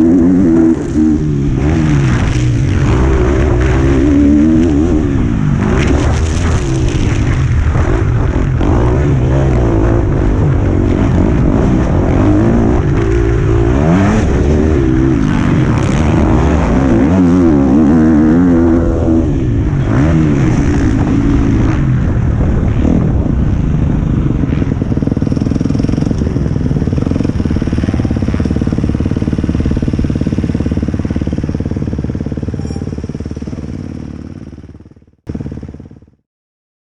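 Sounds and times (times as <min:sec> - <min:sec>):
motocross bike engine revving: 0:00.0 - 0:35.8.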